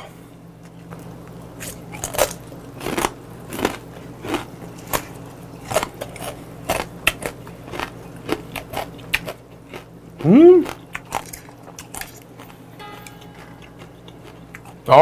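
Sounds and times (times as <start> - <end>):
crunchy chewing: 0.7 - 12.7
low steady hum: 11.2 - 15.0.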